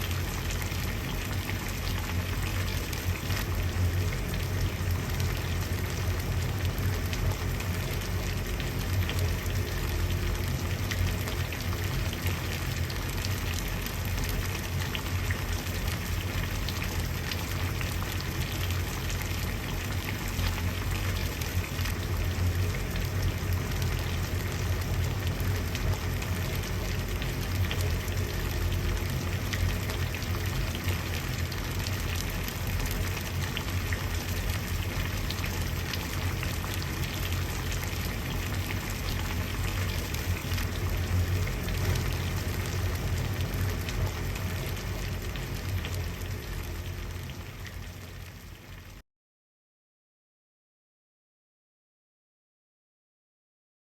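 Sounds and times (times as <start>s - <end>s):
water boiling and bubbling: 0.0s - 49.0s.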